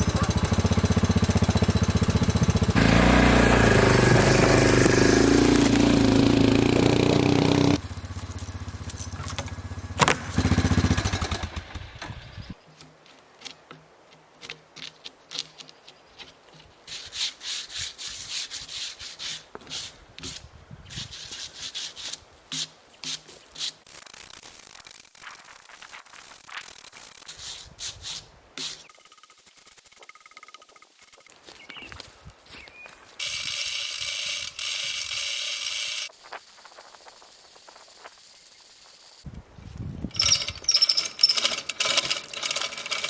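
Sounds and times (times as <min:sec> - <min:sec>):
sawmill engine running: 0:00.0 - 0:12.3, 0:33.2 - 0:36.1, 0:40.2 - 0:43.0.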